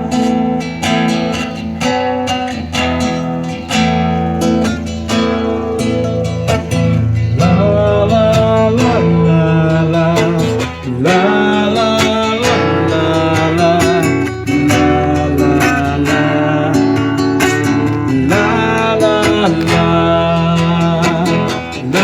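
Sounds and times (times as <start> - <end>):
acoustic guitar strumming: 0.0 - 22.0
gliding melody line: 5.1 - 15.5.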